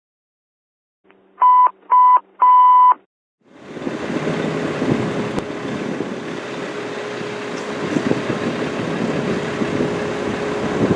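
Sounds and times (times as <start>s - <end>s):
electronic alert beeps: 1.4s - 3.0s
diesel engine running: 3.4s - 10.9s.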